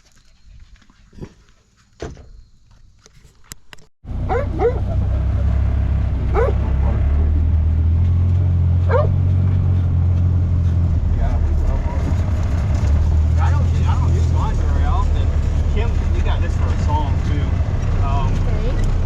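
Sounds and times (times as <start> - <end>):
utility vehicle engine running: 4.1 - 19.0
dog barking: 4.2 - 5.4, 6.2 - 7.3, 8.8 - 9.3.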